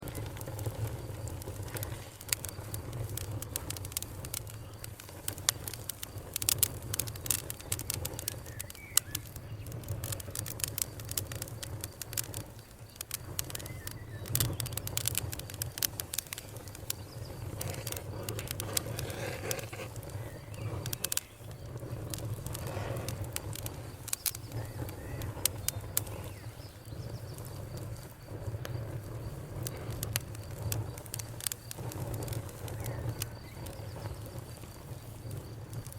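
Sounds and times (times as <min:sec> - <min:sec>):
campfire crackling and popping: 0:00.0 - 0:35.9.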